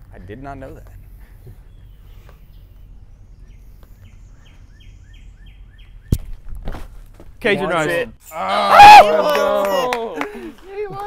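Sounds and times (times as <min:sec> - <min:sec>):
bird chirping: 0:00.0 - 0:06.5
outdoor background noise: 0:00.0 - 0:11.0.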